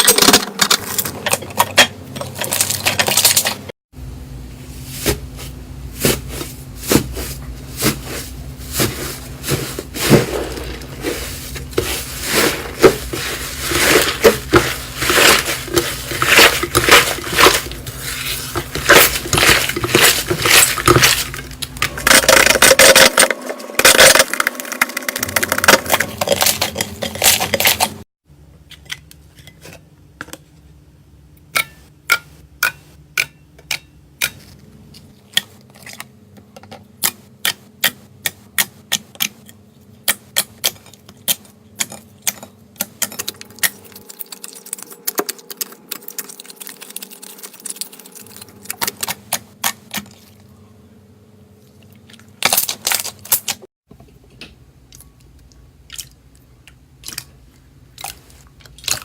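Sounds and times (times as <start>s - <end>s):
knife cutting dry soap: 5.0s - 21.6s.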